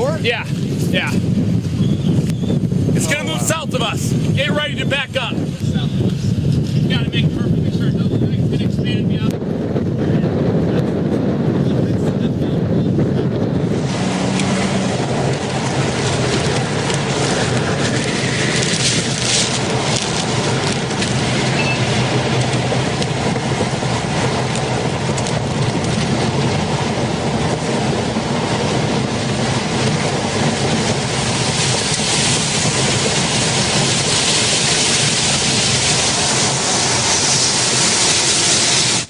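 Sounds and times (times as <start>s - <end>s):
roar of tornado wind: 0.0s - 39.0s.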